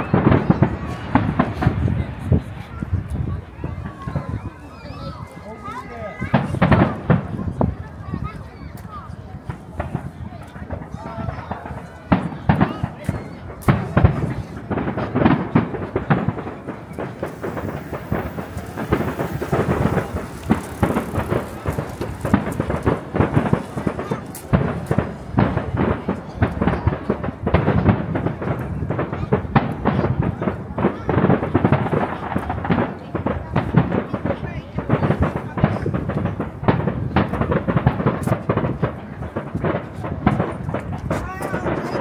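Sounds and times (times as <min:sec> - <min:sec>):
fireworks bursting and crackling: 0:00.0 - 0:42.0
deep rumble: 0:15.9 - 0:23.5.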